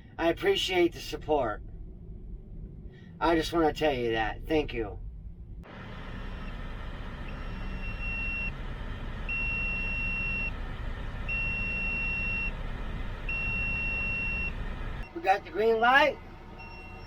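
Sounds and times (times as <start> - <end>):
truck engine idling: 5.6 - 17.0
electronic warning beeps: 6.1 - 17.0.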